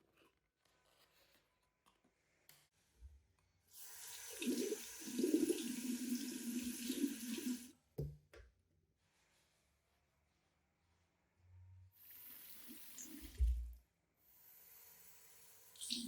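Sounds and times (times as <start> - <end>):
water running from a tap: 3.8 - 7.7, 12.0 - 13.6, 15.4 - 16.0.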